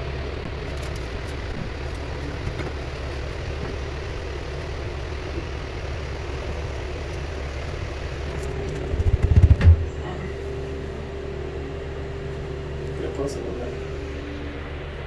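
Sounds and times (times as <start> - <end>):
motor-driven machine running: 0.0 - 15.0.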